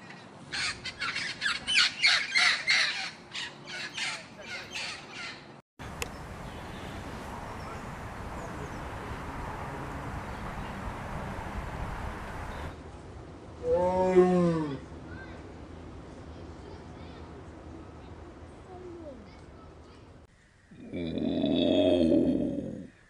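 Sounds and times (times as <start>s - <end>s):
quiet outdoor hiss: 0.0s - 20.9s
macaws squawking: 0.5s - 5.4s.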